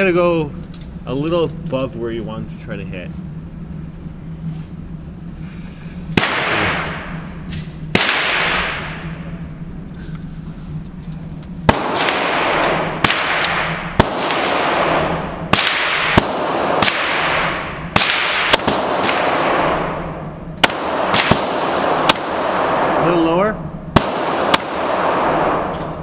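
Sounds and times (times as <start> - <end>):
handgun shots echoing: 6.2 - 7.2, 7.9 - 9.1, 11.7 - 23.0, 24.0 - 26.0.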